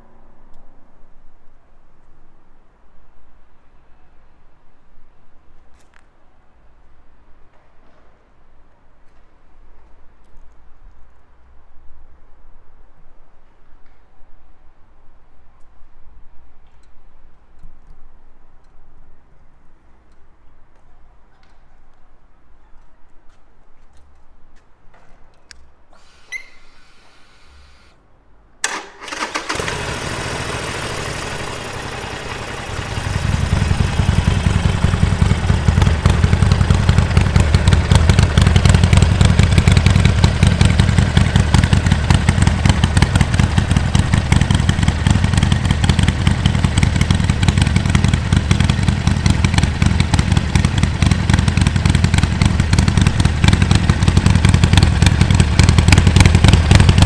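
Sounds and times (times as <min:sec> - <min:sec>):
motorcycle engine starting and idling: 0:28.6 - 0:57.0.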